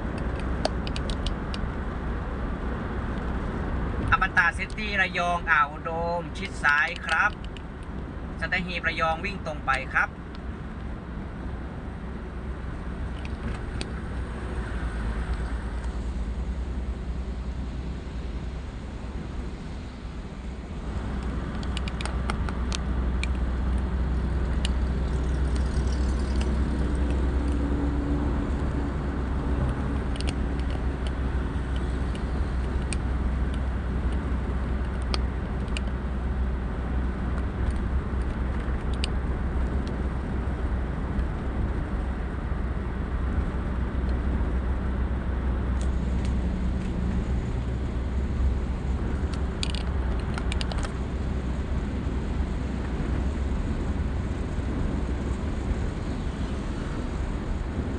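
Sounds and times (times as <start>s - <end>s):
car driving at highway speed: 0.0s - 57.9s.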